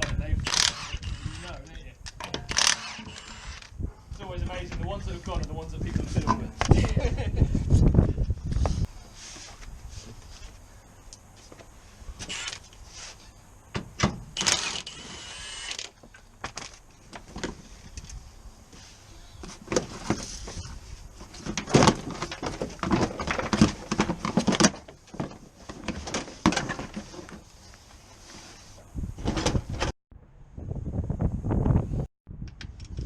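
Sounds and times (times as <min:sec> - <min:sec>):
hand tools and car parts clattering: 0:19.4 - 0:27.5.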